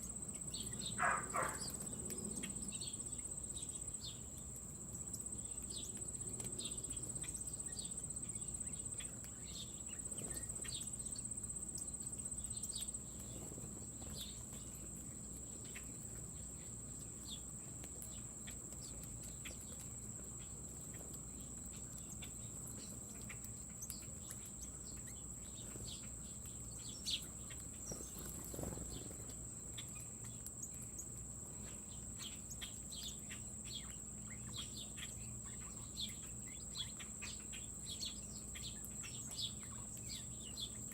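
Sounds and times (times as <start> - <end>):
insects trilling: 0.0 - 40.9
bird chirps: 0.3 - 4.2, 20.4 - 40.9.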